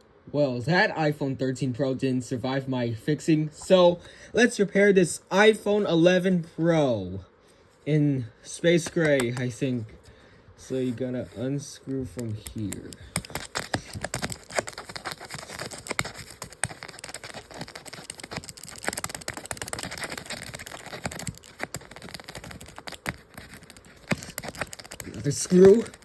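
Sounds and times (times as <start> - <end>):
paper scratching and crinkling: 10.6 - 26.0.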